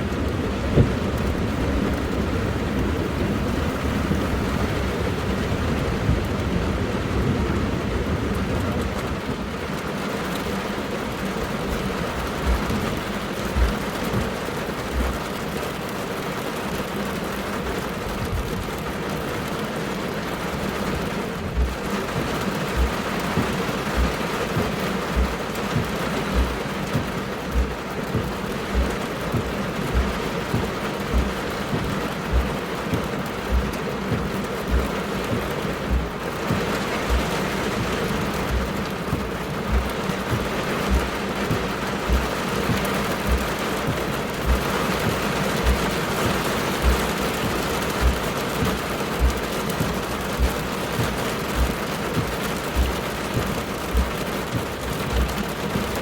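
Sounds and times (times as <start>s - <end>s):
heavy rain falling: 0.0s - 56.0s
short low thumps: 11.8s - 15.2s, 21.4s - 56.0s.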